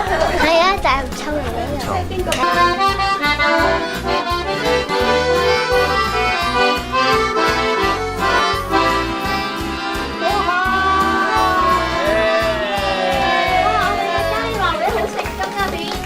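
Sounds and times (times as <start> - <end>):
accordion folk music: 0.0 - 16.0.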